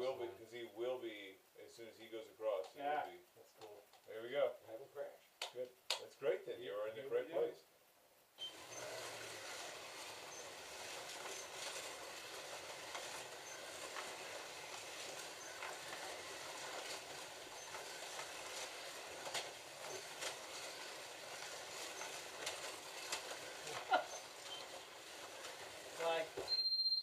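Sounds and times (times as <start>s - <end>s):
slot car motors whirring: 8.4s - 26.5s
short high beeps: 26.5s - 27.0s.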